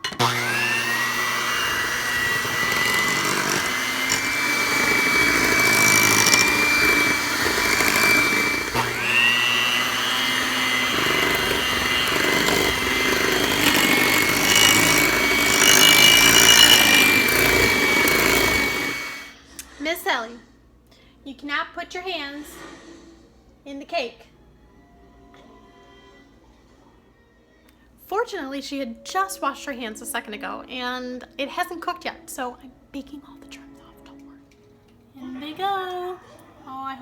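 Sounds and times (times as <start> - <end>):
electric mixer motor whining: 0.0 - 19.4.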